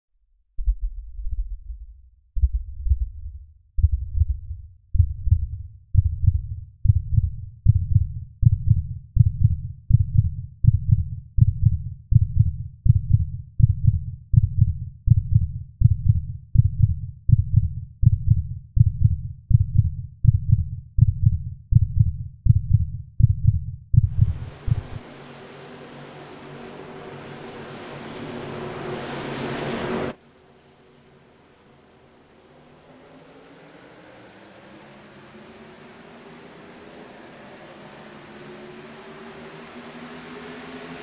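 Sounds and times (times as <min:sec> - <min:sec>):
low thumping beat: 0:00.5 - 0:25.0.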